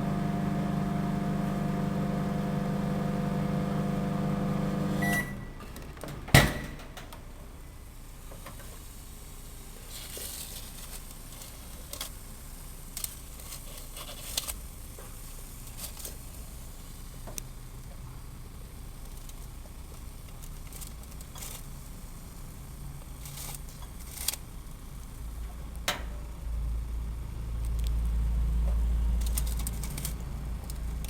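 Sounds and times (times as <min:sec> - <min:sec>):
microwave oven humming: 0:00.0 - 0:05.6
short beep: 0:05.0 - 0:05.6.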